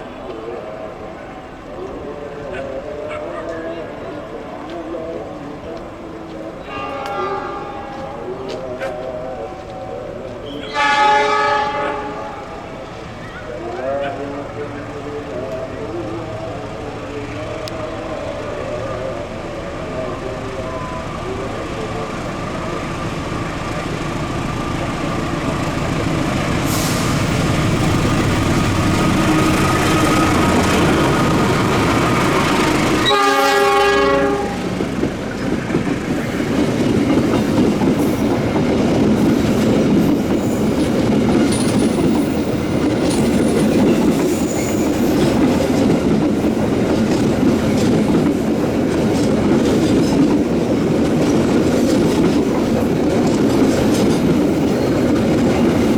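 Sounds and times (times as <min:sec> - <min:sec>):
train rumble: 0:00.0 - 0:55.9
train horn blast: 0:06.6 - 0:08.4, 0:10.5 - 0:12.8, 0:29.0 - 0:34.8.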